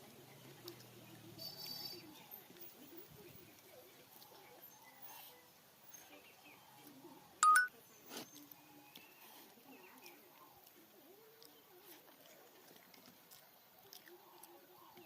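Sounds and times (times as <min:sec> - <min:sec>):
faint low background noise: 0:00.0 - 0:15.0
short electronic beep: 0:07.4 - 0:07.7.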